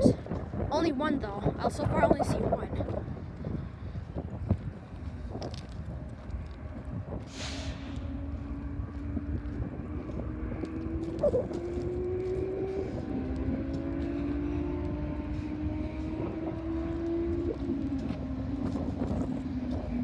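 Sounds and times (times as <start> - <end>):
low wind rumble: 0.0 - 20.0
engine drone: 7.2 - 20.0.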